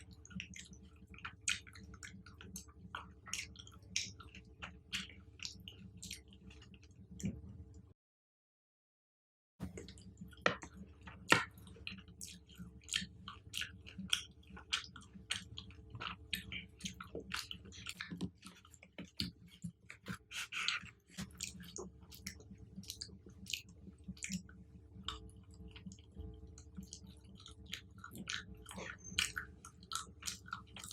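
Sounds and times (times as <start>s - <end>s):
chewing crackly chocolate: 0.0s - 7.4s, 9.7s - 30.9s.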